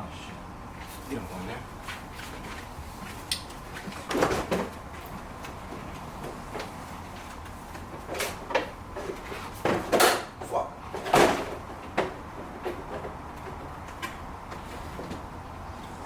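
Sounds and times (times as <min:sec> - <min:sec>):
knocks and rattles of car parts: 0:02.0 - 0:15.8.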